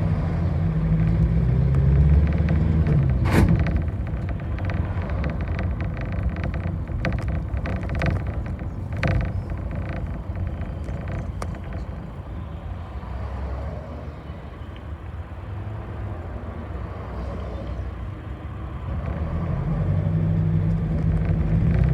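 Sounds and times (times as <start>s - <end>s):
bus body rattling and clicking: 0.0s - 13.5s, 17.3s - 21.9s
bus engine rumbling: 0.0s - 21.9s
sharp knock: 3.2s - 3.8s.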